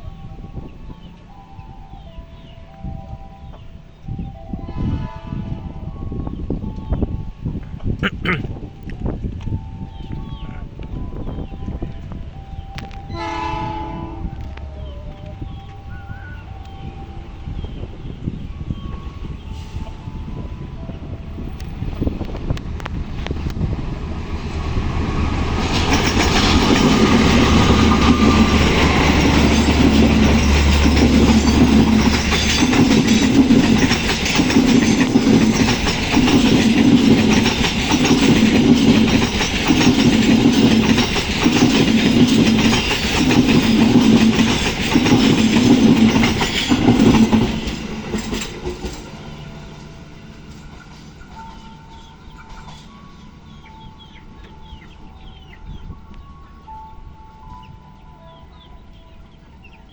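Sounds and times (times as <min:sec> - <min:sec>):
locomotive engine drone: 0:05.4 - 0:59.9
train wheels clattering on rails: 0:21.4 - 0:55.5.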